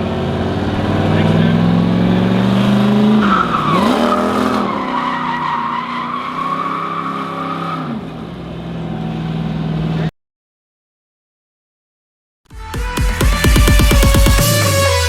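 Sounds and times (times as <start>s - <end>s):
truck engine revving: 0.0s - 10.1s
tyres squealing: 0.7s - 7.9s.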